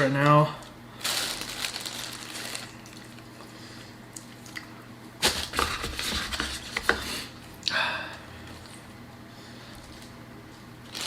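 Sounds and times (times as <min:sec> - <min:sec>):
wet squishing and rustling food: 0:00.0 - 0:06.1, 0:09.6 - 0:11.0.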